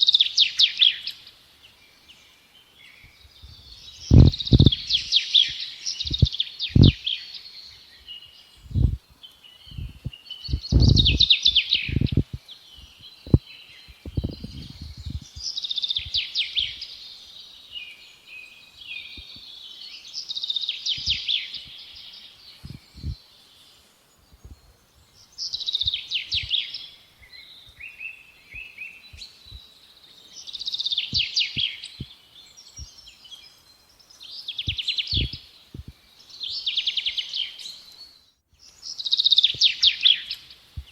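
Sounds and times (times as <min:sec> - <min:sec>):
low thumps: 0:03.4 - 0:05.0, 0:06.0 - 0:07.0, 0:08.7 - 0:09.0, 0:09.7 - 0:11.3, 0:11.9 - 0:12.4, 0:14.0 - 0:15.4
songbird singing trilled phrase: 0:03.4 - 0:07.6, 0:09.6 - 0:17.0.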